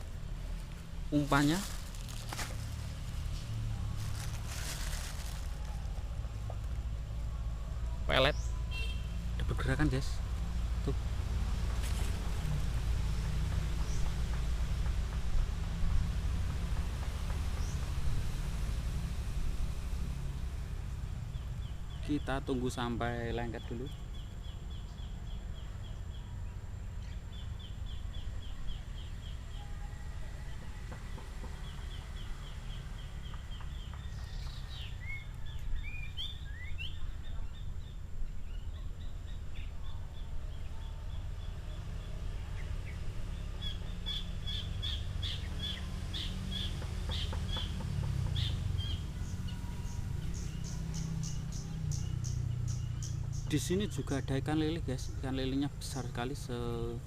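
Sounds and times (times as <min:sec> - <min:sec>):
steady low rumble: 0:00.0 - 0:08.1
bird chirping: 0:21.2 - 0:57.0.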